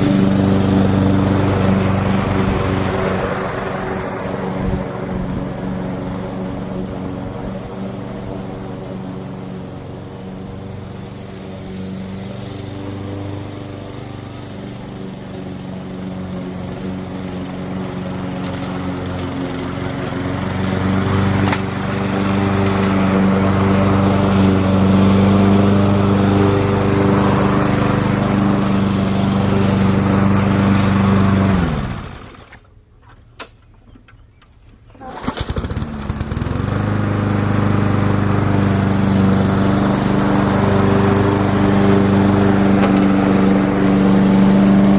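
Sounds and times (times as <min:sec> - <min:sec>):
lawn mower engine running: 0:00.0 - 0:44.9.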